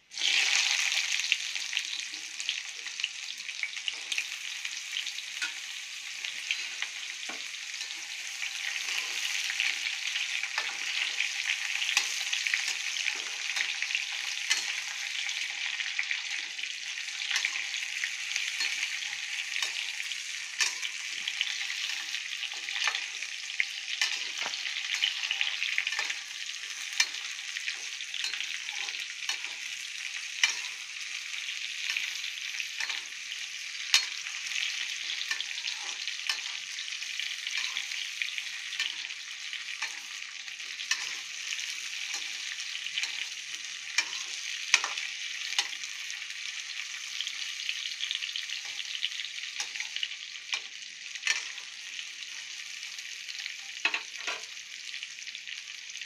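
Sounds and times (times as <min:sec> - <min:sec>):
mango and spices sizzling in oil: 0:00.0 - 0:56.0
spatula scraping a pan: 0:03.8 - 0:16.6, 0:17.2 - 0:46.2.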